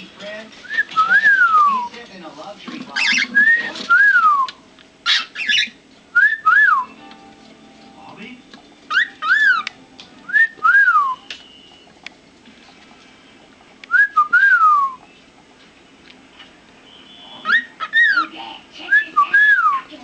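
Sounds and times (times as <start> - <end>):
cockatiel whistling: 3.0 - 6.9, 8.9 - 11.9, 16.8 - 18.3.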